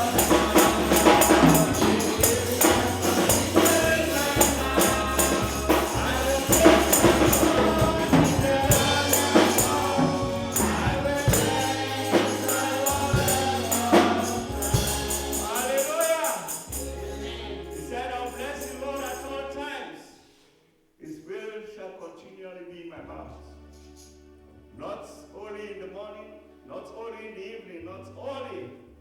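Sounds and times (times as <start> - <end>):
bass line: 0.0 - 15.8, 16.7 - 19.6
tambourine shaking: 0.0 - 19.6
choir singing: 0.0 - 20.1.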